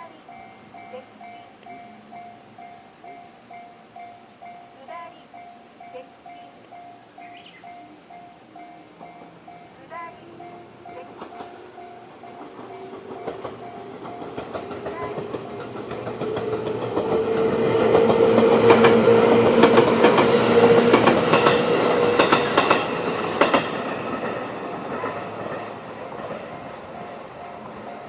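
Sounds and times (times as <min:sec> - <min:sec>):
level crossing warning chime: 0:00.0 - 0:15.3
train motor hum: 0:07.3 - 0:28.0
wheels clacking over rail joints: 0:07.3 - 0:28.0.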